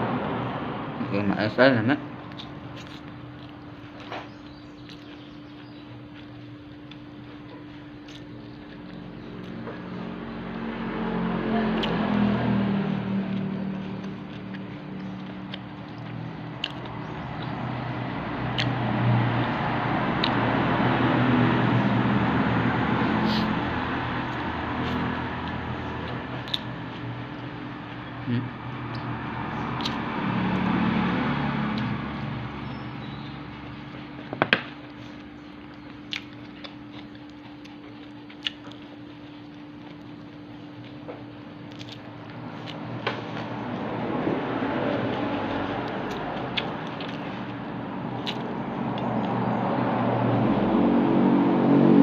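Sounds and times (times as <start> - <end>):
chewing: 2.2 - 10.6, 11.6 - 21.1, 23.2 - 50.1
sharp biting clicks: 13.3 - 17.6, 18.5 - 18.8, 24.8 - 27.1, 29.7 - 30.7, 35.7 - 38.9, 41.7 - 43.9, 45.1 - 47.3, 48.1 - 49.4
mouth clicks and smacks: 18.5 - 18.8, 24.9 - 26.7, 29.7 - 30.0, 48.2 - 49.4.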